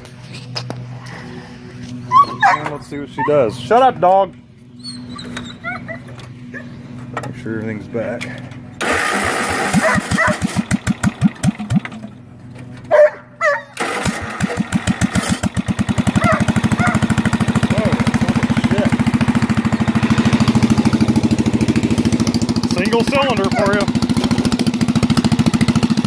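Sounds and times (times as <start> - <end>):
lawn tractor engine running: 0.0 - 26.0
dog barking: 2.2 - 3.4, 9.8 - 10.5, 12.9 - 13.8, 16.2 - 17.1, 23.5 - 23.8.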